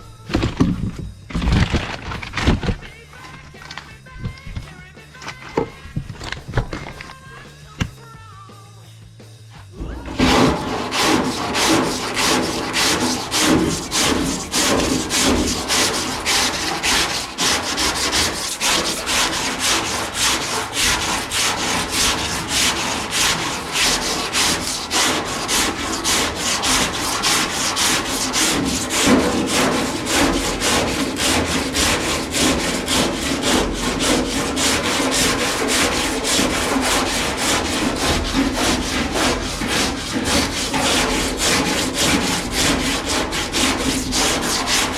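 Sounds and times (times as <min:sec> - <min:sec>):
sandpaper rasping on filler: 0:10.1 - 0:44.9.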